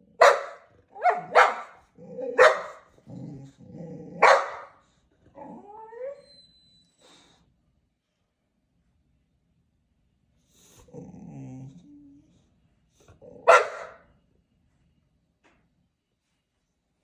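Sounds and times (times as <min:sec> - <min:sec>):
dog barking: 0:00.1 - 0:02.9, 0:04.2 - 0:04.8, 0:13.4 - 0:14.0
dog growling: 0:00.9 - 0:04.4, 0:05.3 - 0:05.9, 0:10.8 - 0:12.2
dog whining: 0:05.3 - 0:07.3.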